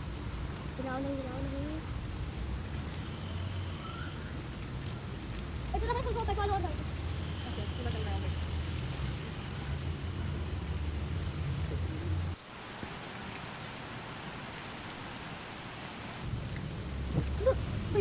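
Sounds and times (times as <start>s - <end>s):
rain falling steadily: 0.0s - 18.0s.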